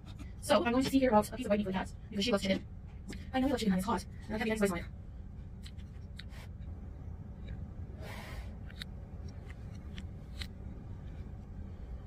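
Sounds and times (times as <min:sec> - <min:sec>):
steady low hum: 0:00.0 - 0:12.0
breath hiss: 0:08.0 - 0:08.6.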